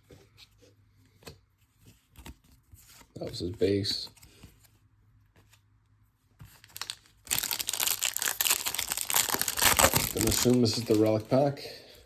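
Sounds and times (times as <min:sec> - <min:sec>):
foil wrapper tearing and crinkling: 0:06.6 - 0:11.3.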